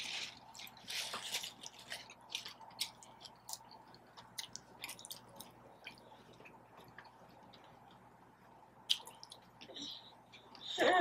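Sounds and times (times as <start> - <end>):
person chewing food: 0.0 - 8.1, 8.8 - 10.6.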